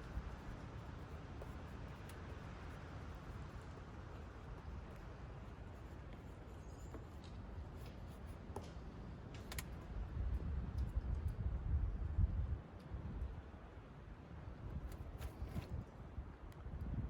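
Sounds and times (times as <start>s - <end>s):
drawing tool scratching paper: 0.0s - 8.4s
wind rumble on microphone: 9.5s - 17.0s.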